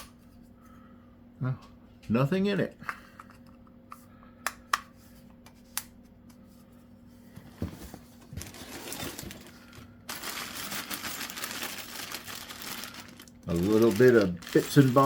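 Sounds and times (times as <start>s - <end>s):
plastic packaging crinkling: 8.2s - 15.0s.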